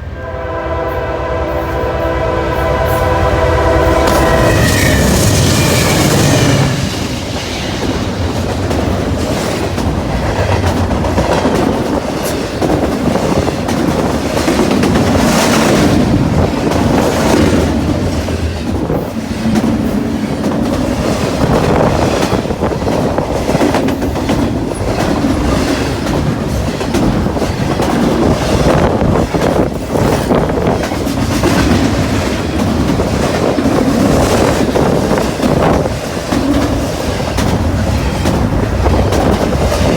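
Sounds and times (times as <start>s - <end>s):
locomotive horn: 0.0s - 6.9s
train wheels clattering on rails: 4.0s - 39.9s.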